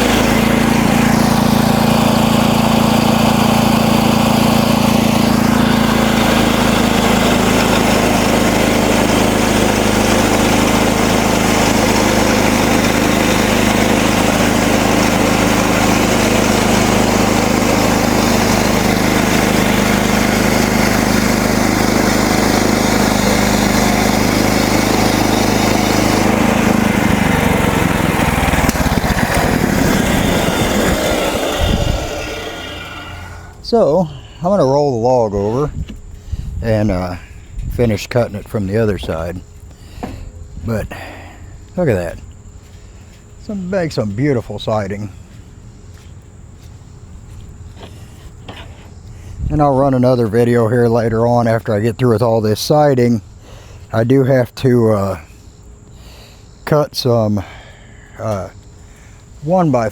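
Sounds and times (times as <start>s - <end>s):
band saw cutting log: 0.0s - 34.0s, 47.7s - 50.5s
sawmill engine running: 0.0s - 59.9s.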